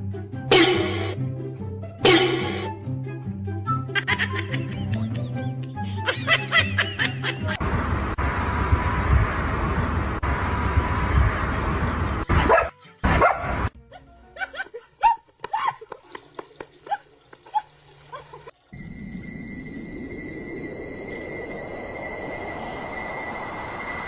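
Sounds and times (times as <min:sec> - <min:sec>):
dog barking: 0:12.3 - 0:15.2.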